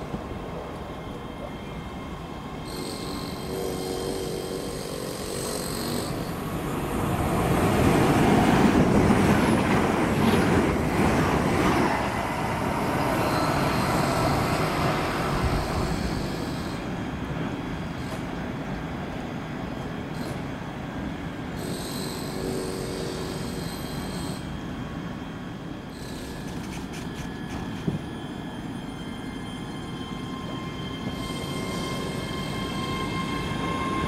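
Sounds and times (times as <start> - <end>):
train passing at speed: 0.0 - 34.0.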